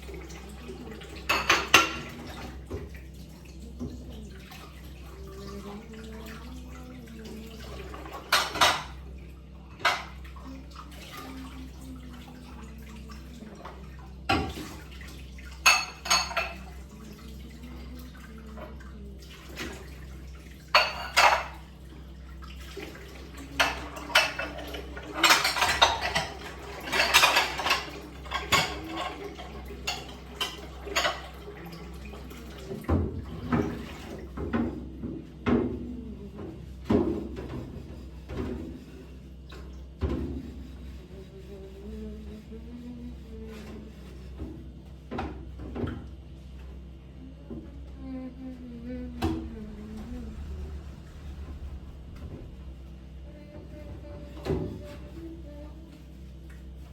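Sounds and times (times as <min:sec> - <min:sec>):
dishes and cutlery clinking: 0:01.2 - 0:02.2, 0:15.6 - 0:16.7, 0:20.7 - 0:21.6, 0:23.5 - 0:31.3.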